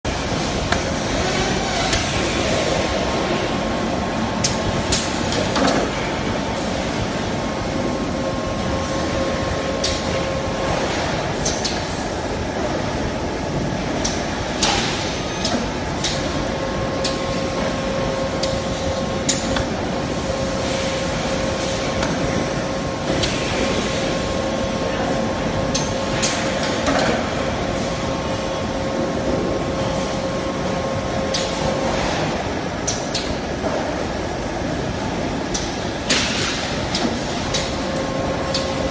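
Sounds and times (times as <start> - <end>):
machine hum: 0.1 - 38.9.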